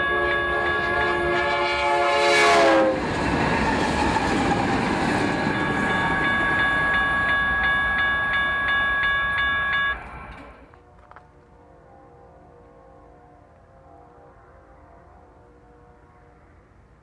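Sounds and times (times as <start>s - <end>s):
crossing bell ringing: 0.0s - 2.2s, 3.8s - 10.8s
train horn: 0.0s - 4.8s, 10.8s - 17.0s
train rumbling past: 0.0s - 11.0s.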